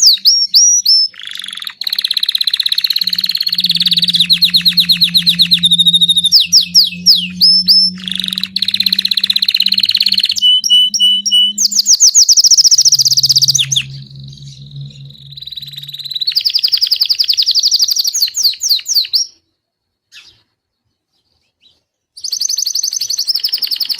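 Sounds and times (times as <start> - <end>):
canary singing trills: 0.0 - 17.0.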